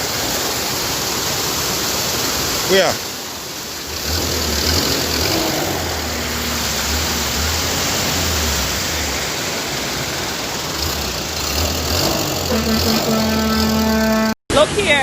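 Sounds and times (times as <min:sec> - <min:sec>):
steady rushing noise: 0:00.0 - 0:11.9
low vehicle engine hum: 0:00.0 - 0:14.4.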